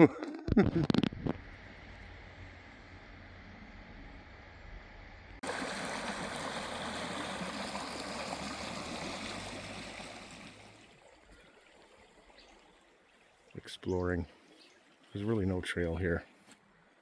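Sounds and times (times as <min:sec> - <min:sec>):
running water rushing: 0:05.4 - 0:15.1.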